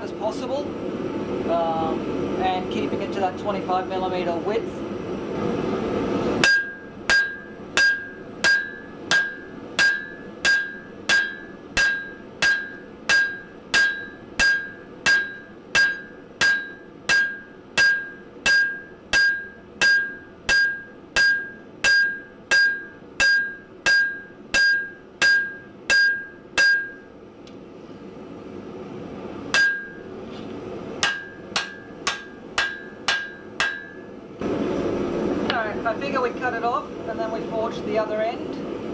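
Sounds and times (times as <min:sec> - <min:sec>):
hammer ringing on anvil: 0:06.4 - 0:27.1, 0:29.5 - 0:30.1, 0:31.0 - 0:34.2.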